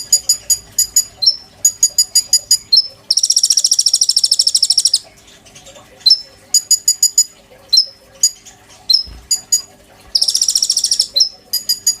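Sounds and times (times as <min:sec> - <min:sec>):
fast buzzing trill: 0:00.0 - 0:05.0, 0:06.1 - 0:12.0
songbird singing: 0:00.0 - 0:05.0, 0:10.2 - 0:12.0.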